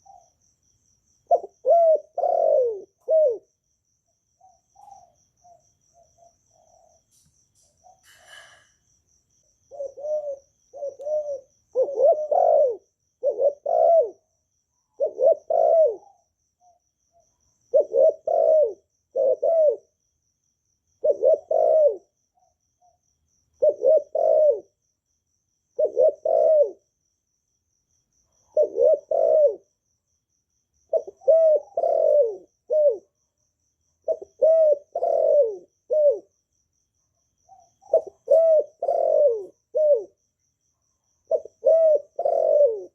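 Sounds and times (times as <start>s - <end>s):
dove cooing: 0.0s - 0.5s, 1.2s - 3.6s, 4.4s - 7.0s, 7.8s - 8.8s, 9.7s - 16.8s, 17.7s - 20.0s, 21.0s - 23.0s, 23.6s - 24.8s, 25.8s - 26.9s, 28.4s - 29.7s, 30.9s - 33.2s, 34.0s - 36.4s, 37.5s - 40.2s, 41.2s - 42.9s.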